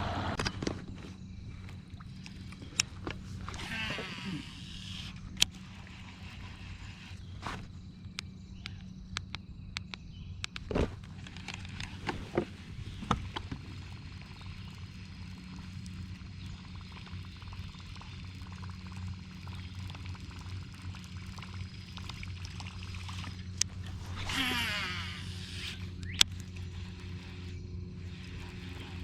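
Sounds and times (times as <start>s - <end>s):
water sloshing around hull: 0.5s - 8.9s, 10.7s - 29.0s
electric motor humming: 1.8s - 8.6s, 11.1s - 29.0s.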